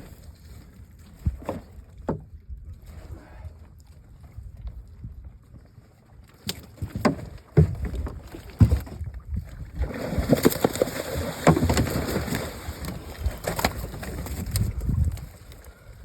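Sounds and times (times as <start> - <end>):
knocks and thumps in boat: 0.0 - 3.4, 4.2 - 15.5
clattering and splashing: 6.4 - 15.2.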